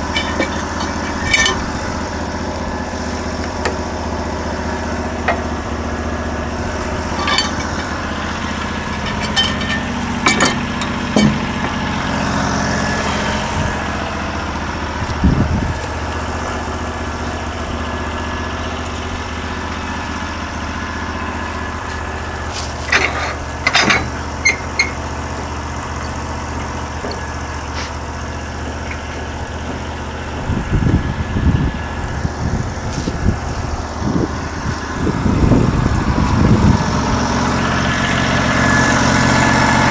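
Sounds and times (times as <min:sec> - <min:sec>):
sawmill engine running: 0:00.0 - 0:39.9
sharp knocks and clatters: 0:06.8 - 0:12.0, 0:22.6 - 0:25.0.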